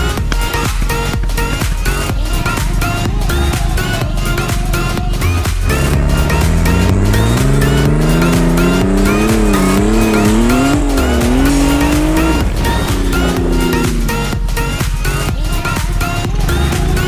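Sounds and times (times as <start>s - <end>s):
vehicle engine revving: 2.5s - 17.0s
electronic background music: 4.9s - 15.1s.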